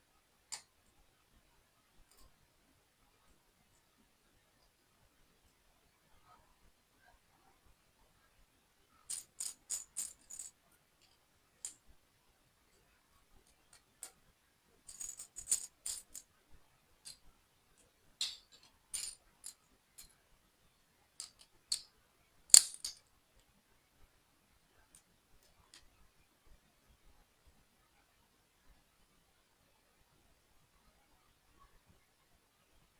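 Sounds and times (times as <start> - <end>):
plastic toy pieces clicking: 9.1 - 10.5, 14.9 - 16.2, 18.2 - 19.6, 21.2 - 21.9, 22.5 - 23.0.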